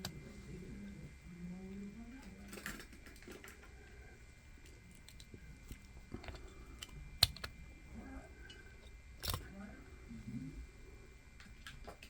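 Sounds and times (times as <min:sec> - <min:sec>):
handling clicks and crinkles: 0:04.6 - 0:07.6, 0:08.4 - 0:09.5.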